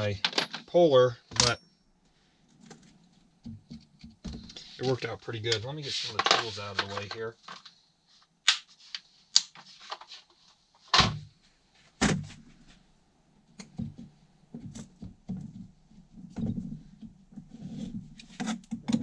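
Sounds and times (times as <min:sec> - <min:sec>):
tools clattering and shuffling: 0:00.0 - 0:01.6, 0:02.5 - 0:07.8, 0:08.8 - 0:11.2.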